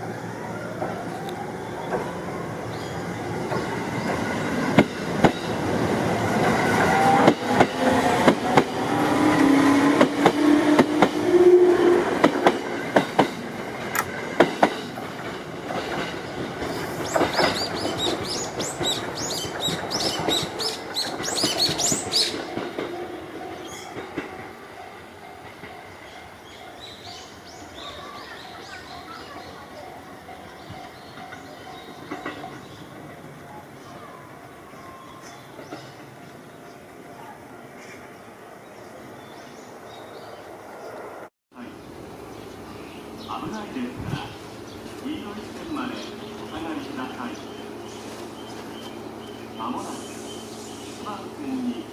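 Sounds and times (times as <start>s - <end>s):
wheels clicking over rail joints: 0.7s - 34.0s.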